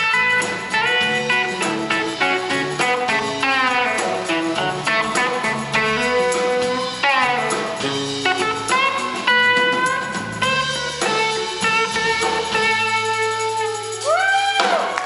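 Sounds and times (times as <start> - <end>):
electric lead guitar: 0.0 - 15.0
live rock band playing: 0.0 - 15.0.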